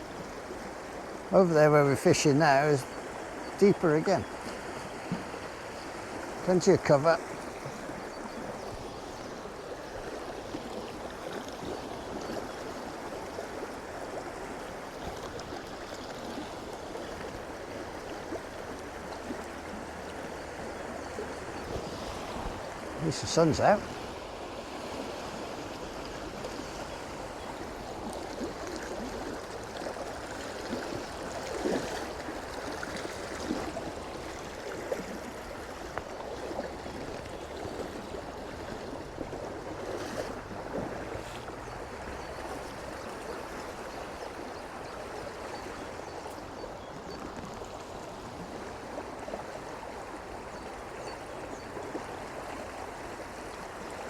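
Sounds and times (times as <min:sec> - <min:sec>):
stream running over stones: 0:00.0 - 0:54.0.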